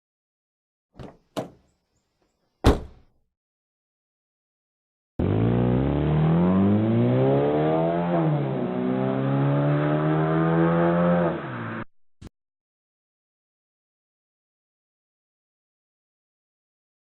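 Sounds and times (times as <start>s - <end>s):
car engine accelerating: 5.2s - 11.9s.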